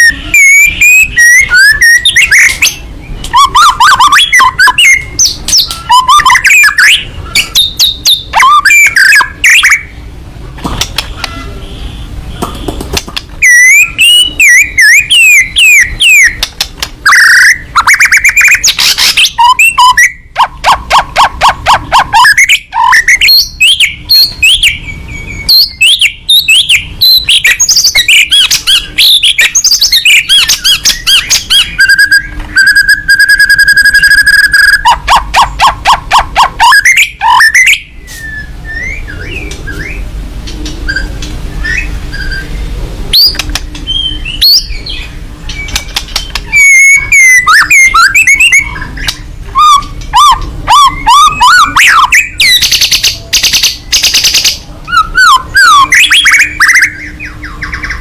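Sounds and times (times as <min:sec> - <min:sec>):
bird singing loudly: 0:00.0 - 0:10.2, 0:13.4 - 0:58.0.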